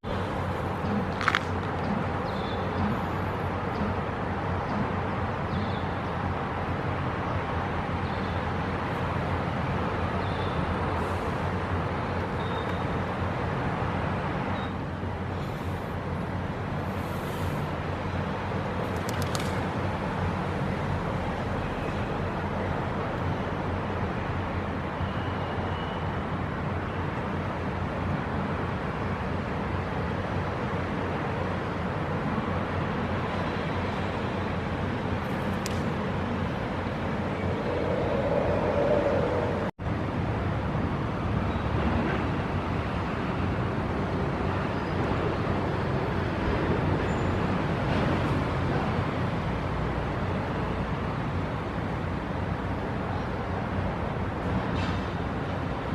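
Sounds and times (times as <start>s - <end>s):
traffic rumble: 0.0s - 55.9s.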